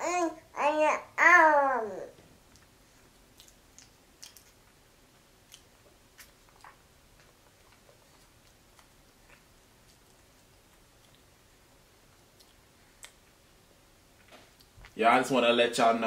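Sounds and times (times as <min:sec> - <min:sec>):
child chewing with mouth clicks: 0:02.1 - 0:15.0.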